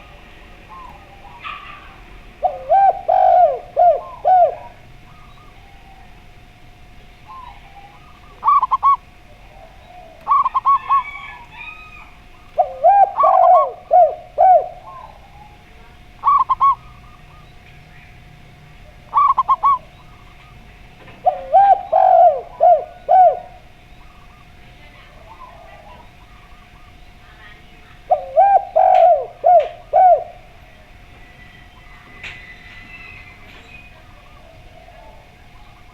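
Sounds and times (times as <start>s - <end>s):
low falling dove coos: 0.0s - 6.6s, 7.2s - 17.6s, 18.8s - 27.0s, 27.9s - 35.9s
faint steady hum: 0.0s - 35.9s
high quick dove coos: 0.7s - 4.8s, 8.4s - 9.0s, 12.6s - 15.3s, 19.1s - 19.9s, 21.2s - 23.6s, 28.1s - 30.4s.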